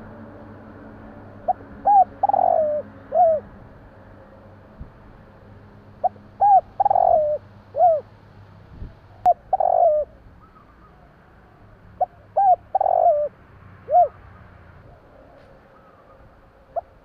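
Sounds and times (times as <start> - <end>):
dove cooing: 1.3 - 3.5, 6.0 - 8.1, 9.2 - 11.1, 12.0 - 14.2, 14.8 - 17.0.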